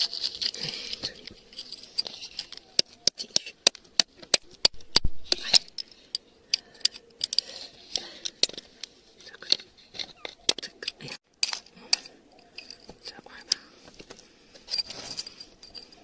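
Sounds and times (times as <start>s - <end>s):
gritty scraping through soil: 0.0s - 2.8s.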